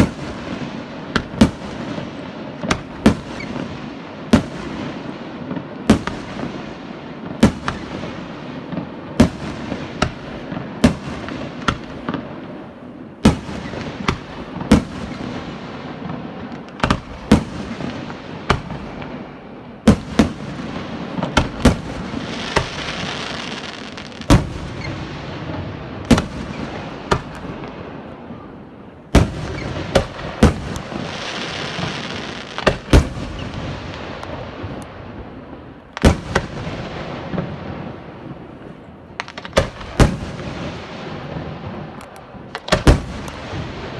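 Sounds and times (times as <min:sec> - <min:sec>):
fireworks crackling: 0:00.0 - 0:43.9.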